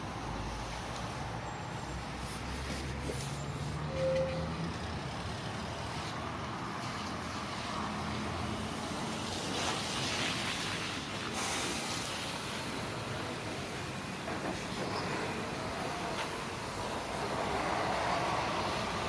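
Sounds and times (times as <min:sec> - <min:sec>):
air hiss: 0:11.3 - 0:14.6.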